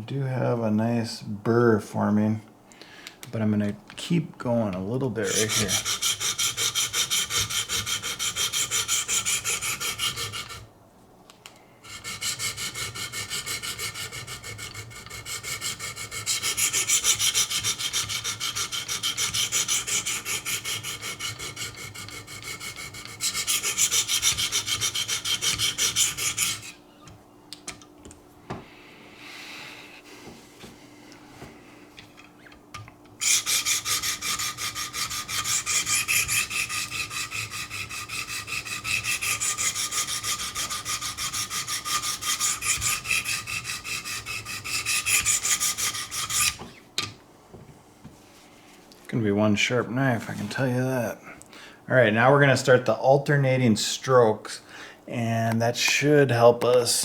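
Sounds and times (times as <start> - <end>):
sharpening stones scraping knife: 5.3 - 10.6, 33.2 - 46.6.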